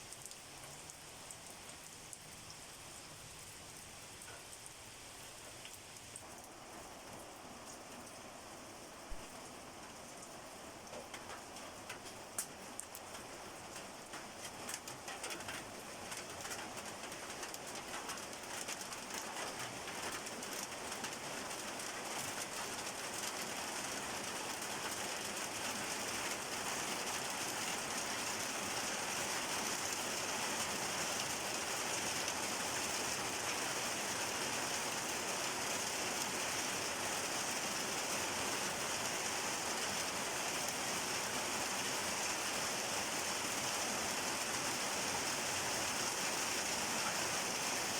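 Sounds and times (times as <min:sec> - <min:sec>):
rain hissing: 0:00.0 - 0:47.9
raindrop ticks: 0:09.9 - 0:23.4.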